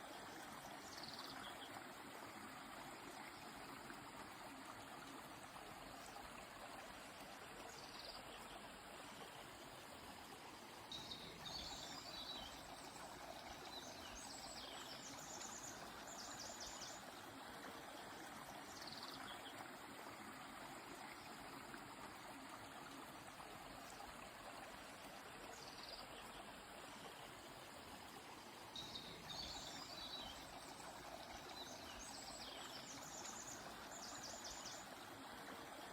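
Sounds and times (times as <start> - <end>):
river flowing: 0.0 - 35.9
songbirds calling faintly: 0.0 - 35.9.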